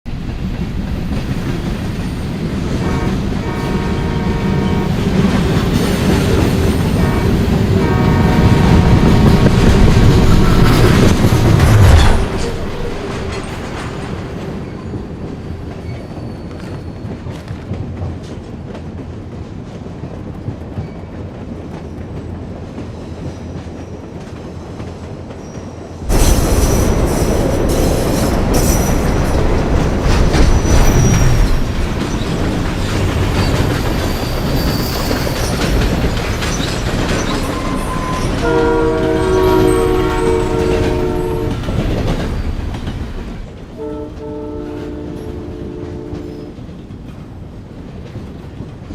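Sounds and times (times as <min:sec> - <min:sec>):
train wheels clattering: 0:00.1 - 0:48.9
train wheels squealing: 0:14.5 - 0:17.7, 0:20.7 - 0:21.3, 0:25.3 - 0:26.0, 0:30.1 - 0:40.9.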